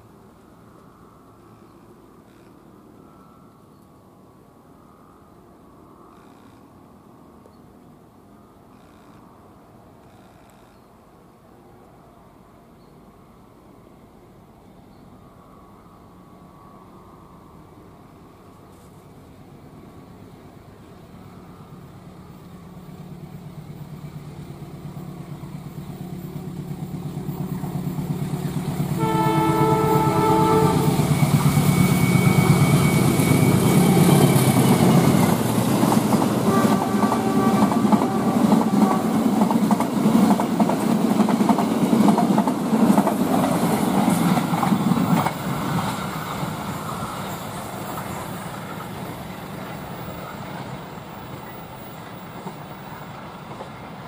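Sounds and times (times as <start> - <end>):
diesel locomotive engine drone: 0.0 - 54.0
train wheels clattering on rails: 23.3 - 54.0
multi-tone train horn: 28.9 - 34.9, 36.3 - 39.4.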